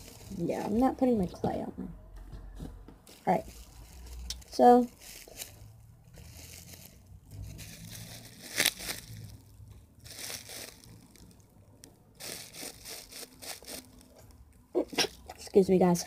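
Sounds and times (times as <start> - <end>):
packaging crinkling: 0.0 - 0.9, 3.1 - 11.4, 12.2 - 15.3.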